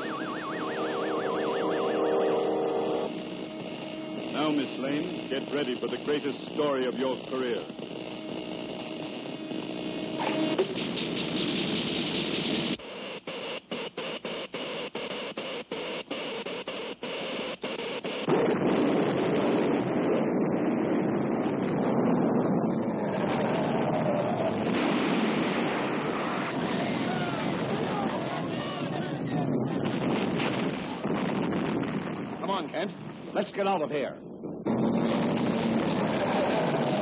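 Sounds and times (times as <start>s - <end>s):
stuttering cartoon hissing: 3.1s - 10.0s
dense rumbling noise: 18.3s - 37.0s.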